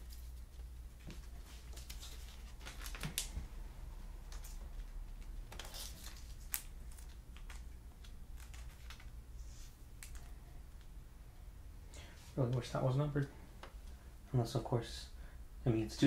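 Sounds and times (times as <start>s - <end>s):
cards rustling: 0.0s - 10.9s
steady low hum: 0.0s - 16.0s.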